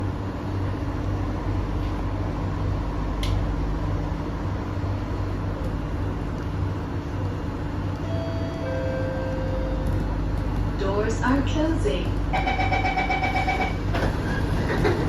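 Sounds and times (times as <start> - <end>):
train air conditioning hum: 0.0 - 15.0.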